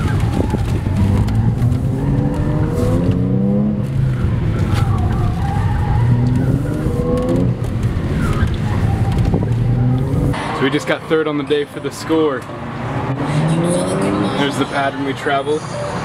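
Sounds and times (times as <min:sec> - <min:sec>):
car engine accelerating hard: 0:00.0 - 0:11.2, 0:12.1 - 0:16.0
tyres squealing: 0:00.0 - 0:11.5.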